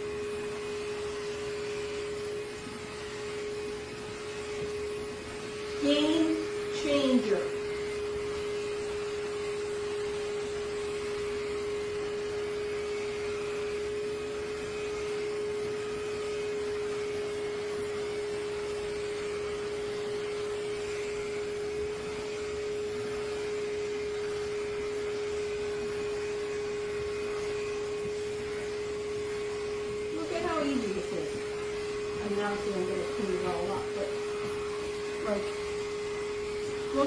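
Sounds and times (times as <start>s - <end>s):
dog clipper with vacuum running: 0.0s - 37.0s.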